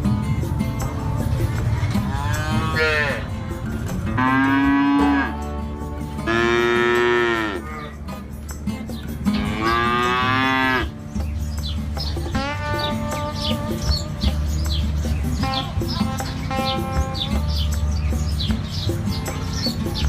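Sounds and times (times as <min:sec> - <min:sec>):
cow mooing: 0:01.8 - 0:05.5, 0:06.1 - 0:08.0, 0:09.3 - 0:11.0.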